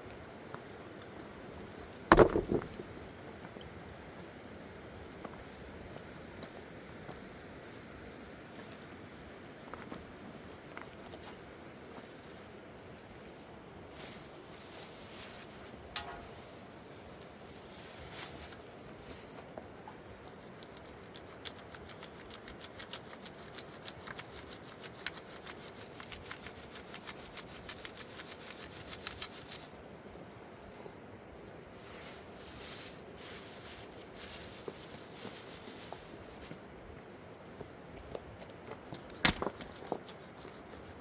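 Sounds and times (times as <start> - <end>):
loose rustles and scrapes: 10.8 - 36.9.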